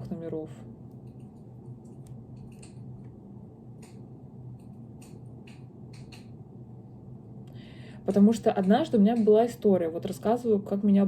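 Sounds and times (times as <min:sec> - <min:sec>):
low hum: 0:00.0 - 0:10.9
faint clicks and ticks: 0:00.9 - 0:03.2, 0:03.8 - 0:06.4.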